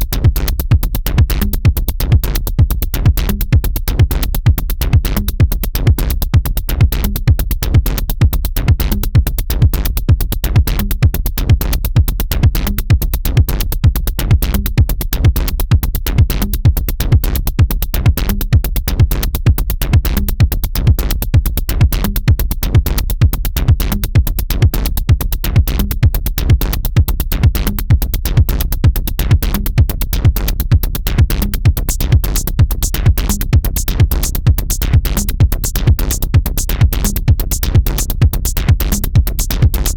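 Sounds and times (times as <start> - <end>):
electronic dance music: 33.4 - 34.4, 35.0 - 39.9.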